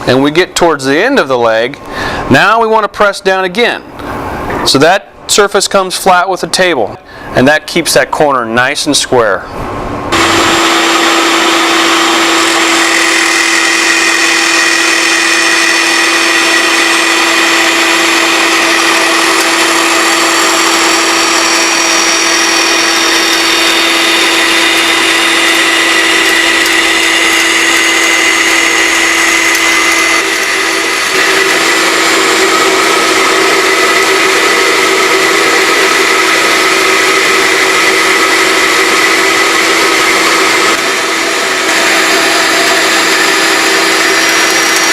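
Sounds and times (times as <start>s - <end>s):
bandsaw cutting wood: 10.1s - 44.9s.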